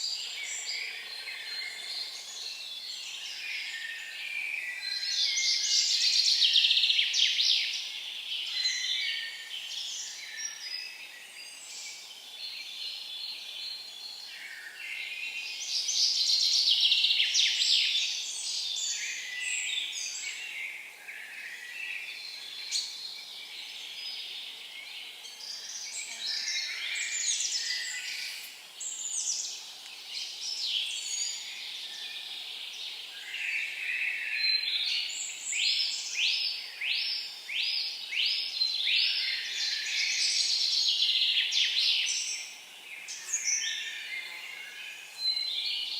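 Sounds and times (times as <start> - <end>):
songbirds singing: 0.0 - 45.9.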